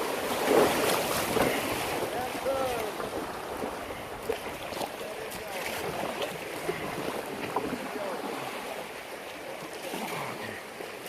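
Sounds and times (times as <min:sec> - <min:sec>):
river water rushing and splashing: 0:00.0 - 0:11.0.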